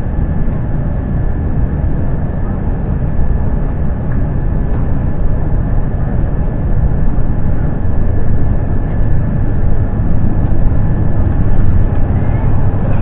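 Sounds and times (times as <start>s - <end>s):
airliner cabin rumble: 0.0s - 13.0s
faint steady whine: 0.0s - 13.0s.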